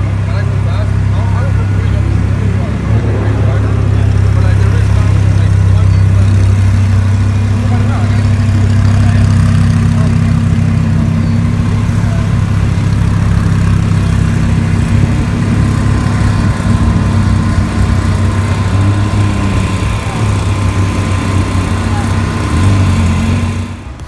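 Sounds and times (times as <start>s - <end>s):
car pulling away: 0.0s - 24.0s
sports car engine idling: 0.0s - 24.0s.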